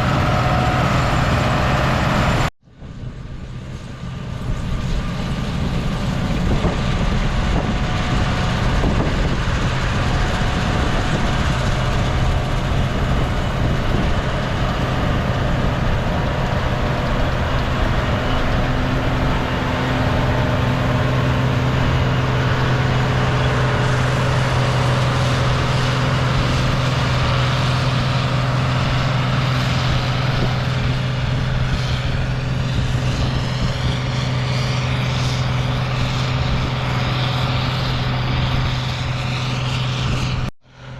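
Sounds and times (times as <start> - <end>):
combine harvester running: 0.0 - 40.9.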